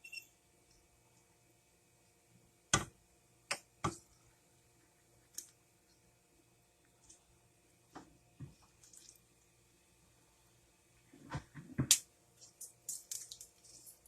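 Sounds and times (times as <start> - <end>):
light ticking and scraping: 12.4 - 14.0.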